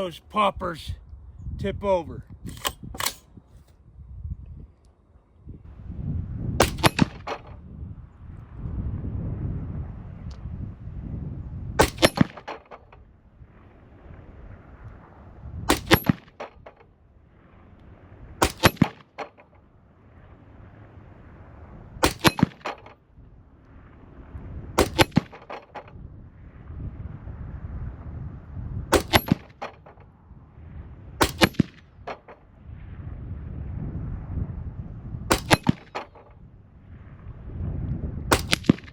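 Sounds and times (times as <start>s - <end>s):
rifle shots with ringing tail: 6.6s - 7.6s, 11.8s - 12.8s, 15.7s - 16.7s, 18.4s - 19.6s, 22.0s - 23.0s, 24.8s - 26.0s, 28.9s - 30.0s, 31.2s - 32.6s, 35.3s - 36.4s, 38.3s - 38.9s.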